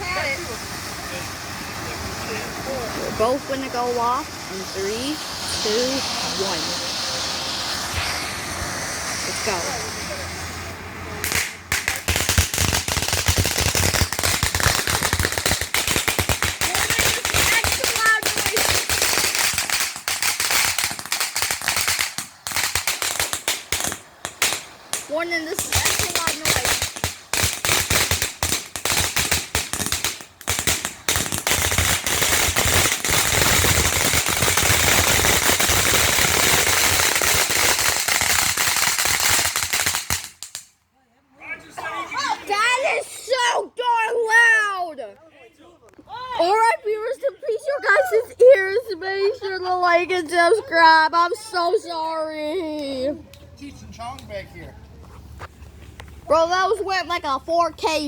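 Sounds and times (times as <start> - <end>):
fireworks bangs and crackles: 0.0 - 40.7
firework hiss: 0.0 - 40.8.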